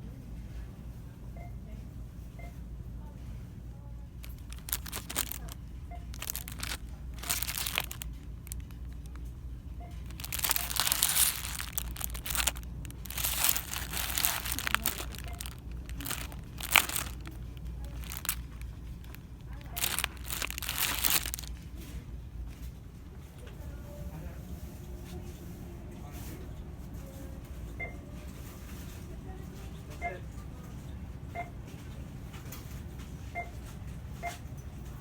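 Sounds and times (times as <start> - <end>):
steady low hum: 0.0 - 24.1
packaging crinkling: 4.2 - 21.6.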